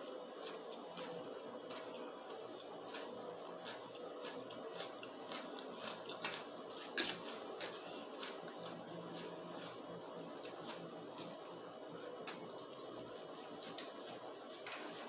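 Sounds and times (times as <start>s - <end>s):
wet chewing clicks: 0.0s - 15.0s.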